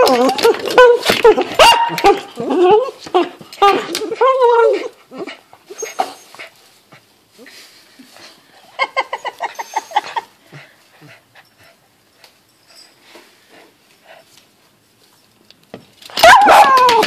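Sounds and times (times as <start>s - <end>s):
dog whining with high yips: 5.7s - 6.4s, 16.1s - 17.0s.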